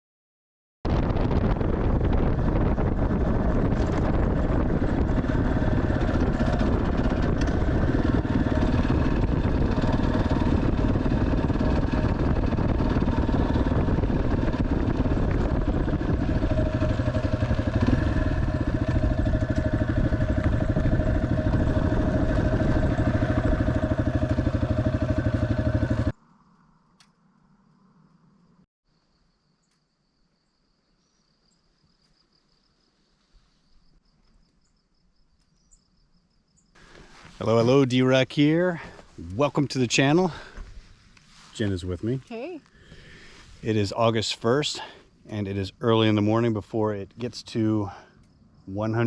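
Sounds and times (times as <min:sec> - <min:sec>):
motorcycle engine running: 0:01.4 - 0:26.2.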